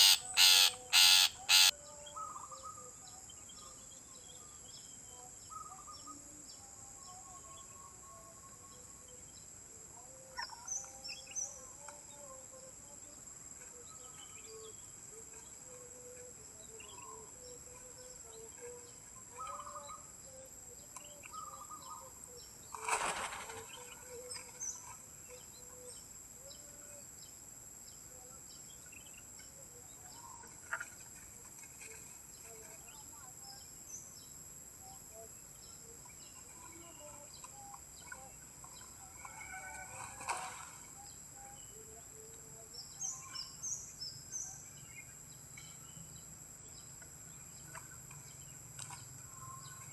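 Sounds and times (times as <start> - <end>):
wild birds chirping: 0.0 - 2.5.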